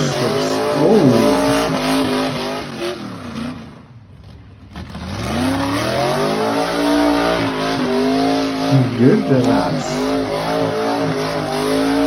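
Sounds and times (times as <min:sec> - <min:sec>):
drag car engine revving: 0:00.0 - 0:12.0.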